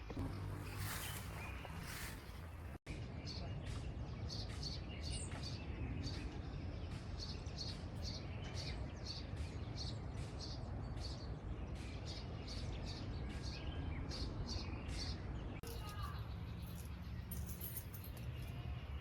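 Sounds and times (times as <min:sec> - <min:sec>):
low steady rumble: 0:00.0 - 0:02.8
bird chirping: 0:00.0 - 0:19.0.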